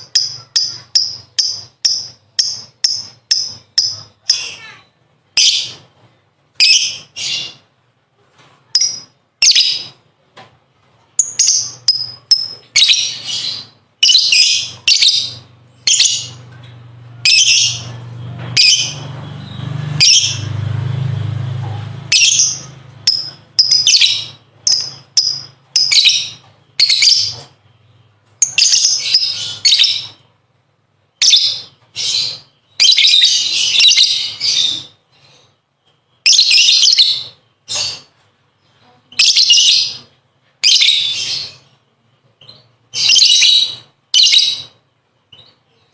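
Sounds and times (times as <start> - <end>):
lovebird chattering: 0.0 - 4.8, 11.2 - 16.4, 22.0 - 27.6, 39.1 - 41.7.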